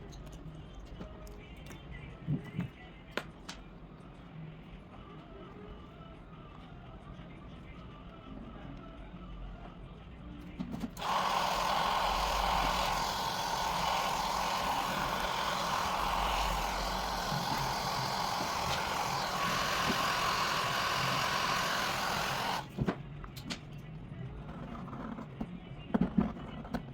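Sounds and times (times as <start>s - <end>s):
hair dryer running: 11.0s - 22.8s.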